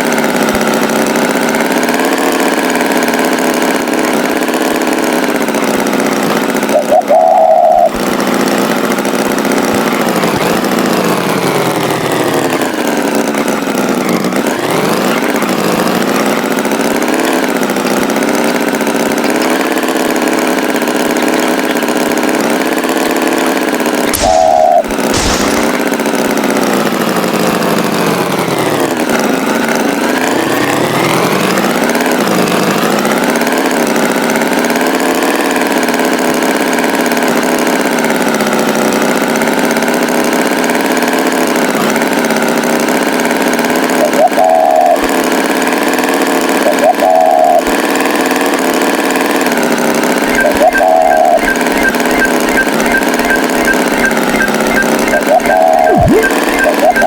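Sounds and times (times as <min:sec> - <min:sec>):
tractor engine running: 0:00.0 - 0:57.0
short high tone: 0:50.3 - 0:57.0.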